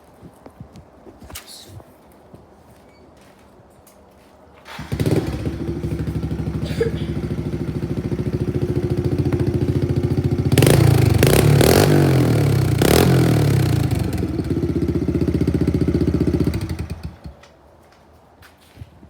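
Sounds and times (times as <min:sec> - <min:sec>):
dirt bike engine idling and revving: 0:04.7 - 0:17.4.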